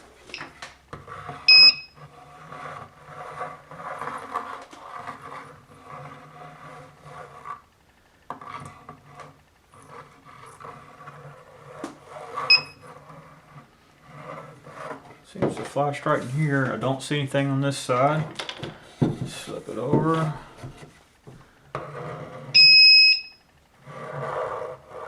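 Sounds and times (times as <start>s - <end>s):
detector scraping across wood board: 0.0s - 25.0s
steady low hum: 0.0s - 25.0s
metal detector beep: 1.5s - 2.0s, 12.5s - 12.8s, 22.6s - 23.4s.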